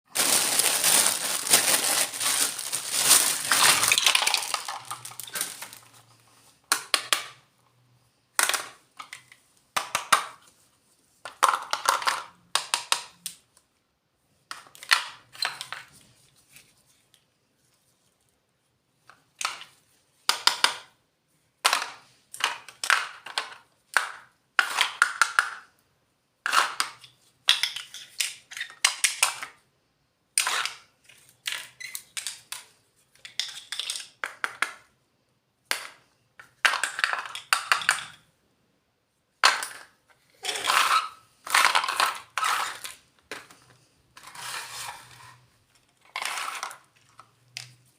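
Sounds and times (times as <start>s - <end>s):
packaging crinkling: 0.1s - 5.9s
toy pieces rustling and clicking: 0.2s - 6.0s, 26.5s - 29.4s, 30.4s - 34.8s, 35.9s - 38.2s, 39.4s - 47.8s.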